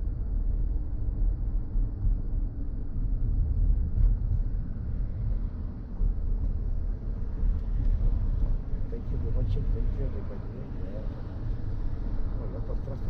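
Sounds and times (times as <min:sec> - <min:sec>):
road and tyre rumble: 0:00.0 - 0:13.0.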